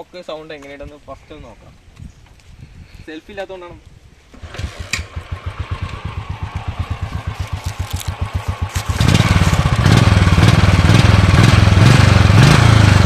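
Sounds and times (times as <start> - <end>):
motorcycle engine idling and revving: 4.3 - 13.0.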